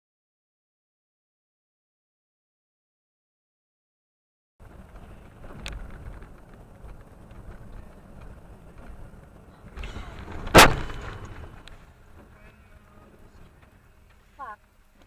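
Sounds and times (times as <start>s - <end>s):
vehicle road noise: 4.6s - 15.0s
car collision bang: 9.8s - 11.8s.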